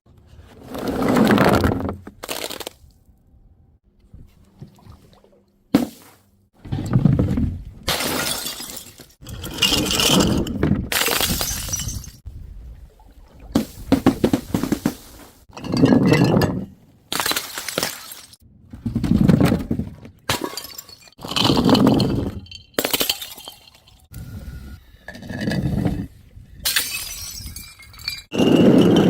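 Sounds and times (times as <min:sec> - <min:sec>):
glass bottles smashing: 0:07.9 - 0:12.2, 0:20.3 - 0:24.1, 0:26.6 - 0:29.0.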